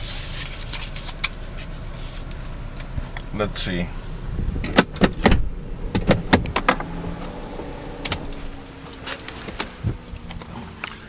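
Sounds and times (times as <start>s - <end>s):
sharp clicks and knocks: 4.6s - 11.0s.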